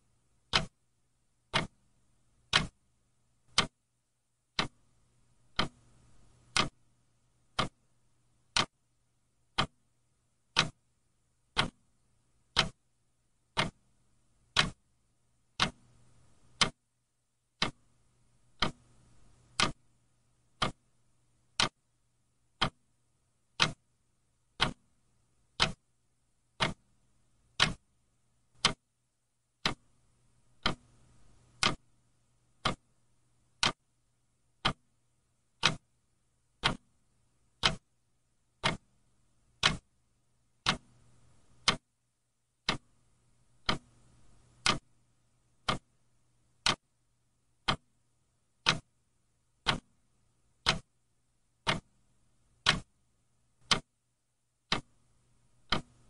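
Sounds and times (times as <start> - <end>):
clock ticking: 0.4 - 0.8, 1.5 - 1.8, 2.4 - 2.8, 3.5 - 3.8, 4.5 - 4.8, 5.5 - 6.8, 7.4 - 7.8, 8.4 - 8.8, 9.5 - 10.8, 11.5 - 12.8, 13.4 - 14.8, 15.5 - 16.8, 17.6 - 19.9, 20.5 - 21.8, 22.5 - 22.9, 23.5 - 23.9, 24.5 - 24.9, 25.5 - 25.9, 26.5 - 27.9, 28.5 - 28.9, 29.6 - 33.9, 34.6 - 36.0, 36.6 - 37.9, 38.5 - 40.0, 40.6 - 41.9, 42.6 - 43.0, 43.6 - 45.0, 45.6 - 45.9, 46.6 - 46.9, 47.6 - 48.0, 48.6 - 49.0, 49.6 - 50.0, 50.6 - 51.0, 51.6 - 52.0, 52.6 - 52.9, 53.6 - 54.0, 54.6 - 56.0.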